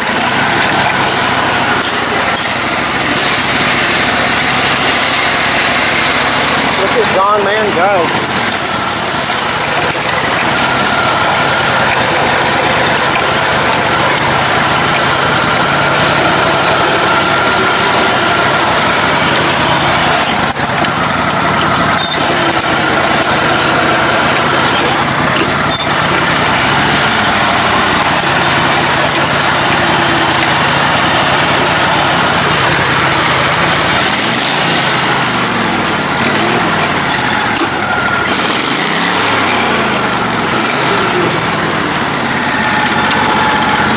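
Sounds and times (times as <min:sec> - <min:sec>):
lawn mower engine running: 0:00.0 - 0:43.9.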